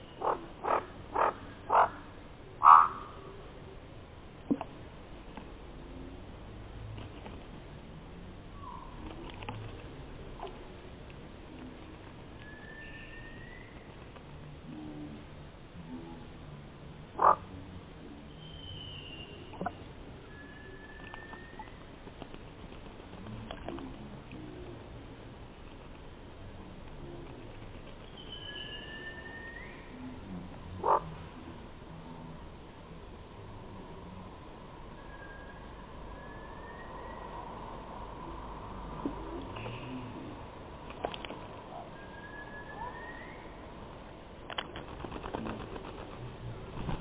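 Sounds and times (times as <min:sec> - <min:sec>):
croak-like animal call: 0:00.1 - 0:03.4, 0:17.1 - 0:17.5, 0:30.7 - 0:31.6
faint rising whistles: 0:42.0 - 0:43.5.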